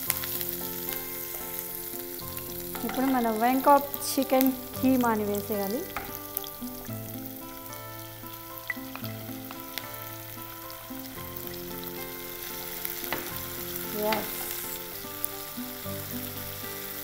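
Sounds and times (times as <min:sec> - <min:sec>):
meat sizzling in a pan: 0:00.0 - 0:17.0
spatula scraping a pan: 0:13.0 - 0:15.0.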